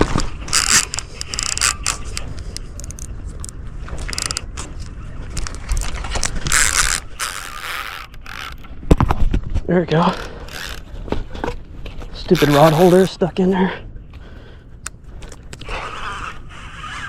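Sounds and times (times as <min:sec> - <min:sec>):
ratcheting clicks: 0:00.0 - 0:04.7, 0:05.4 - 0:08.7, 0:10.0 - 0:10.9, 0:12.3 - 0:13.1, 0:14.8 - 0:15.7.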